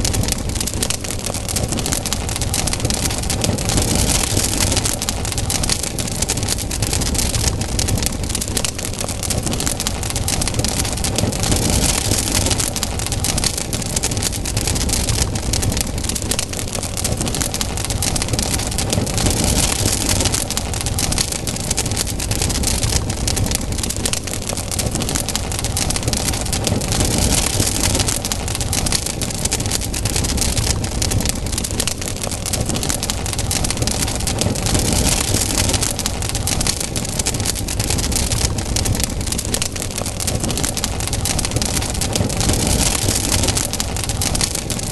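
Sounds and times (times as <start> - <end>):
campfire crackling: 0.0 - 44.9.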